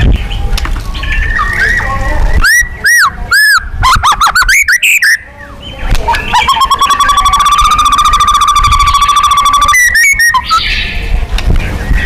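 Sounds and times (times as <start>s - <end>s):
songbird whistling and trilling: 1.0s - 11.0s.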